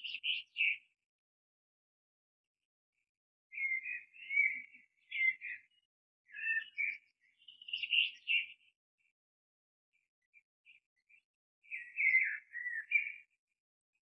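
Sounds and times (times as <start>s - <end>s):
bird chirping: 0.0s - 1.0s, 3.5s - 9.1s, 10.3s - 13.4s.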